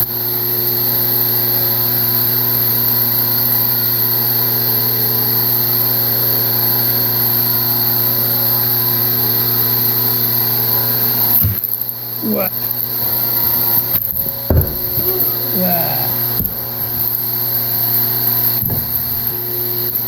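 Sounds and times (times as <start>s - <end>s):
hydraulic motor and pump humming: 13.0s - 20.0s.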